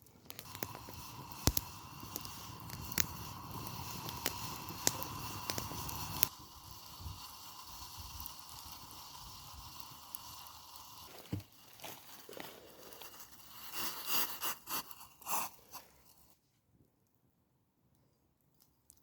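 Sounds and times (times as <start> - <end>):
crinkling and rustling: 11.0 - 16.7.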